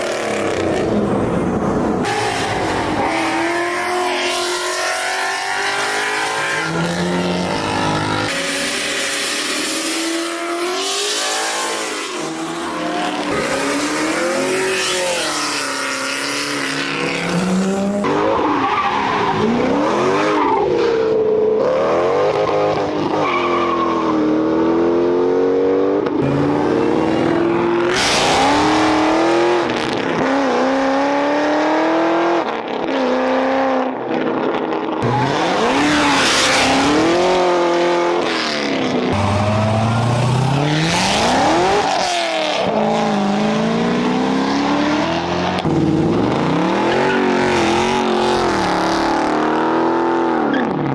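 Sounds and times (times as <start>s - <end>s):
car engine revving: 35.0s - 50.2s.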